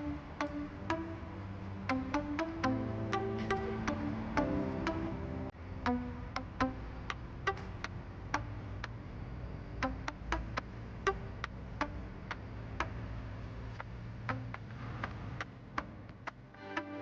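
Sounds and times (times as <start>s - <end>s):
plucked or clicked notes: 1.8s - 8.6s.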